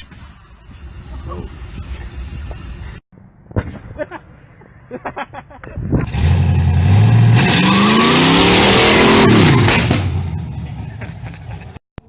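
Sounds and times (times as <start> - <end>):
motorcycle engine revving: 6.0 - 11.8.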